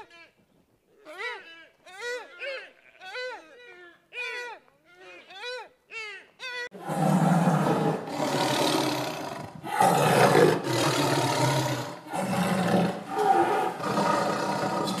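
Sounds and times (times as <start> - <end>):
big cat growling and roaring: 6.8 - 15.0.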